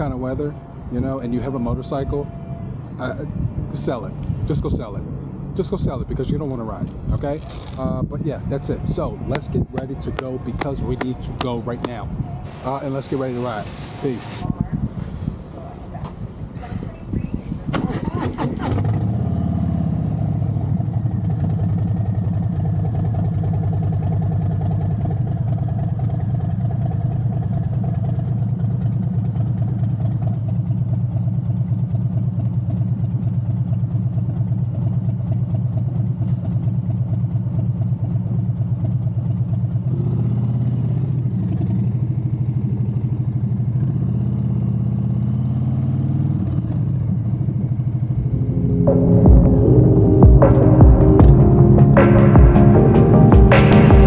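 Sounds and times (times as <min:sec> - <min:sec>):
motorcycle engine idling: 0:20.3 - 0:44.8.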